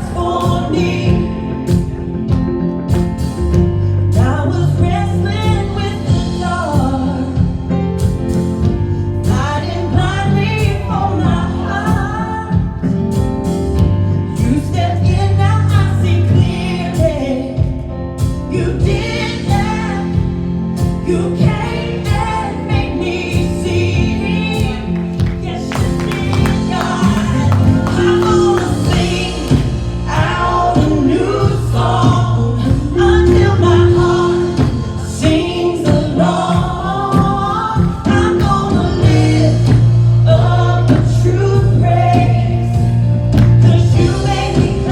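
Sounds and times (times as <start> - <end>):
band playing: 0.0 - 44.9
voices singing: 18.6 - 44.9.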